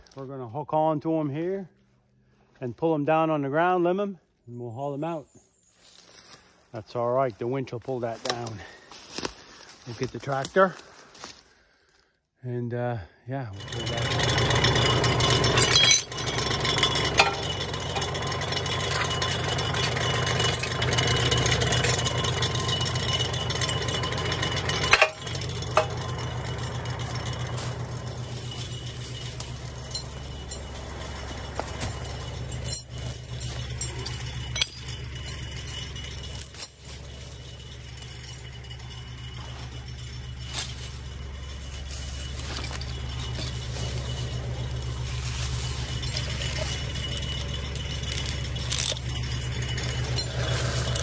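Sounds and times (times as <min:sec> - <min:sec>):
tractor engine running: 0:06.0 - 0:11.3, 0:13.5 - 0:51.0
metallic clinks and rattles: 0:13.6 - 0:51.0.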